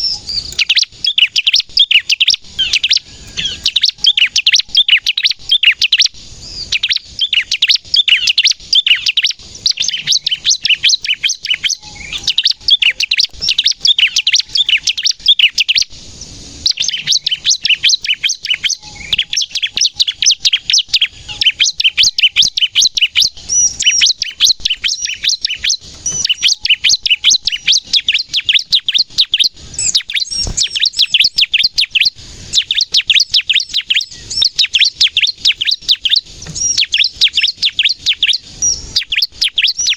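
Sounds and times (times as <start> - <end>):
bird singing sharp high chirps: 0.0 - 39.9.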